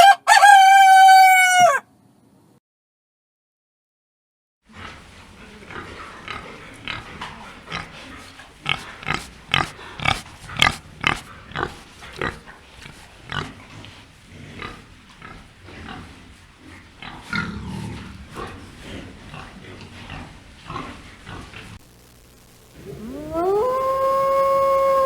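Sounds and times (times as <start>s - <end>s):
pig grunting and squealing: 17.1s - 21.6s, 22.8s - 25.0s.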